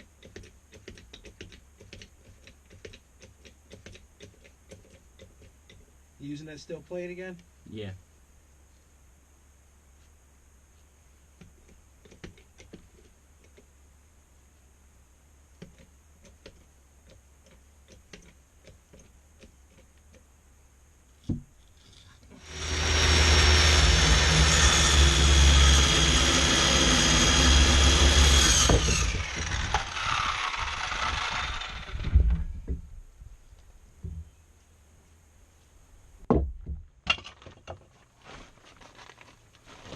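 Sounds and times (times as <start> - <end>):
electric power saw whining: 22.4 - 32.5
knock: 36.3 - 36.8.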